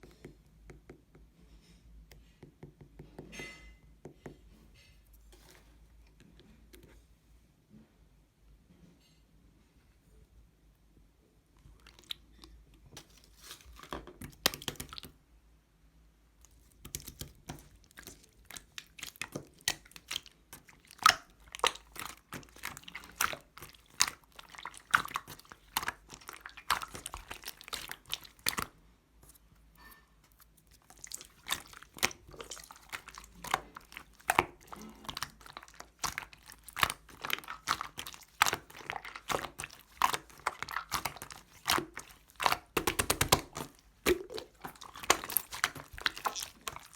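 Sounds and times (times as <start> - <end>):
slime squishing with sticky pops: 11.8 - 15.2, 16.4 - 46.9.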